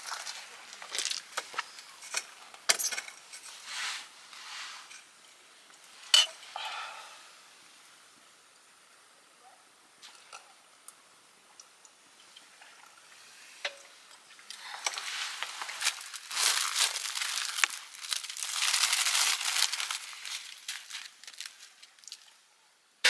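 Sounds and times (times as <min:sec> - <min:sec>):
dry crackling and crinkling: 0:00.0 - 0:03.7, 0:09.4 - 0:22.5.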